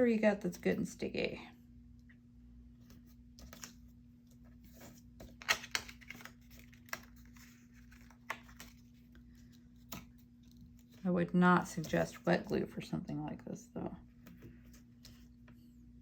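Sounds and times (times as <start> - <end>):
steady low hum: 0.0 - 5.4
tape crinkling and tearing: 4.7 - 11.0.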